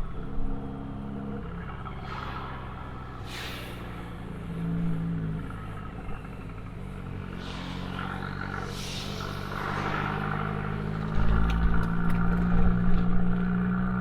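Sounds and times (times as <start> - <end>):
car engine exhaust running: 0.0 - 14.0
rushing noise: 1.8 - 4.9, 7.1 - 12.0.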